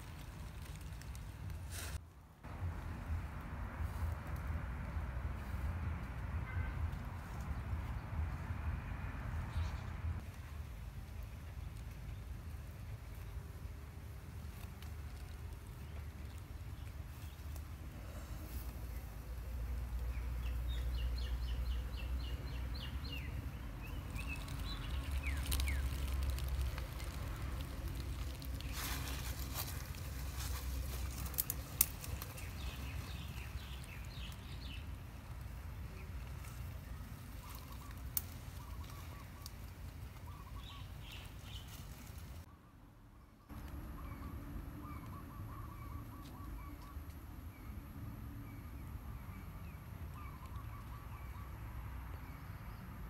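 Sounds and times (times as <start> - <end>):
steady low rumble: 0.0 - 42.5
birds chirping: 18.7 - 27.8, 28.4 - 47.8.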